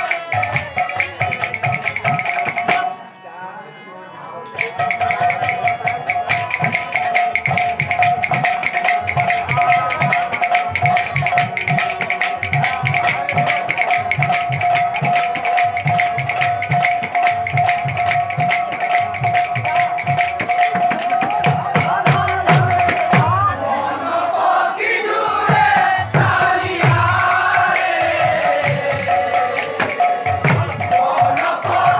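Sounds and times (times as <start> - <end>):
drum beats: 0.0 - 3.1, 4.6 - 23.8, 24.4 - 31.9
cymbals struck rapidly: 4.6 - 23.5, 25.4 - 31.9.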